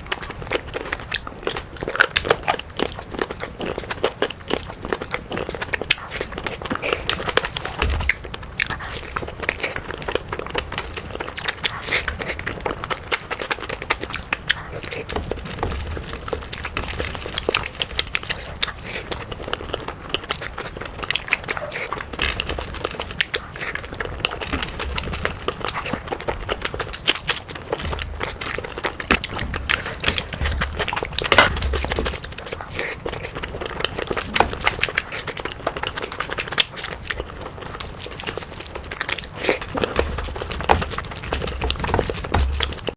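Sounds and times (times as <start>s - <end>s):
chewing and eating: 0.0s - 42.9s.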